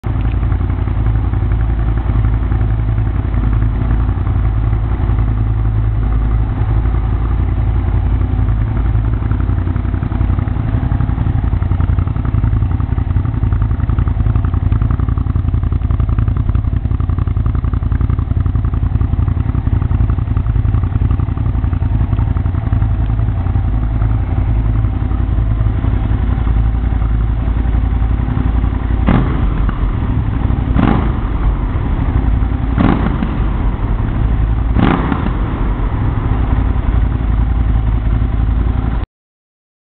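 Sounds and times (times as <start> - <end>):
motorcycle engine idling: 0.0 - 39.0
motorcycle throttle rev: 0.2 - 39.0.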